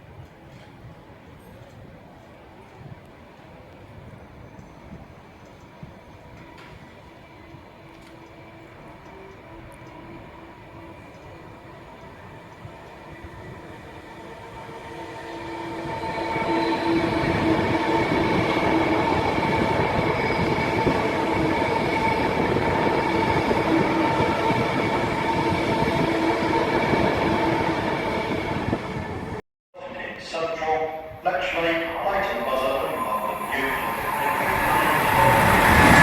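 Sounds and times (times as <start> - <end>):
train rumbling through station: 0.0 - 36.0
steady whining tones: 31.9 - 36.0.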